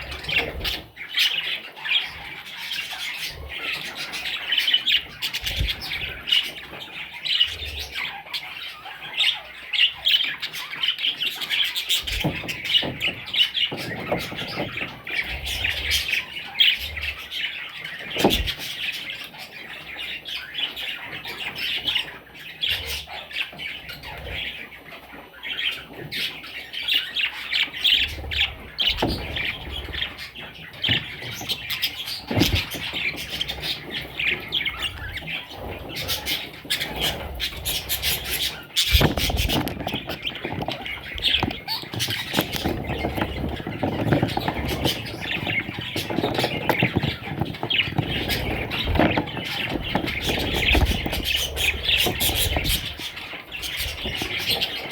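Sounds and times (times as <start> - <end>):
budgerigars chattering: 0.0 - 54.9.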